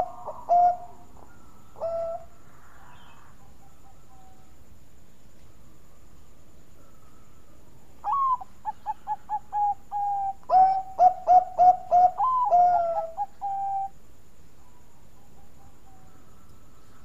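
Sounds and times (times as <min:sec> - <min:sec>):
dove cooing: 0:00.0 - 0:04.4, 0:08.0 - 0:14.0.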